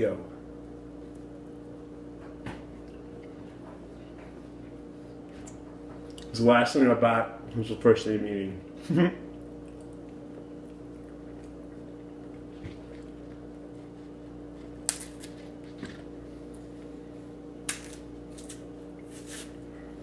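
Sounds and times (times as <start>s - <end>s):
steady background hum: 0.0s - 20.0s
wet chewing mouth smacks: 9.3s - 14.8s.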